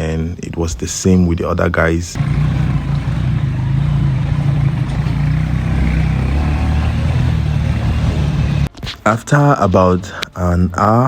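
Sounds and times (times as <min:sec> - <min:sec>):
road and wind noise: 0:02.1 - 0:08.8
motorcycle engine running: 0:02.2 - 0:08.7.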